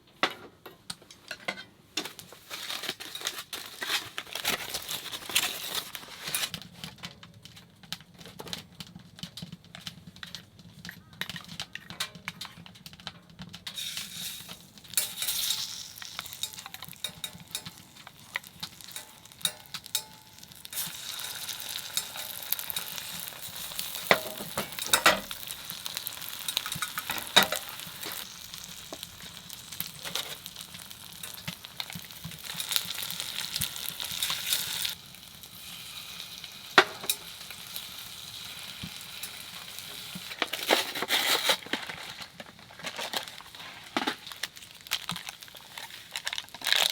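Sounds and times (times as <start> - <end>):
food sizzling in a pan: 13.7 - 41.6.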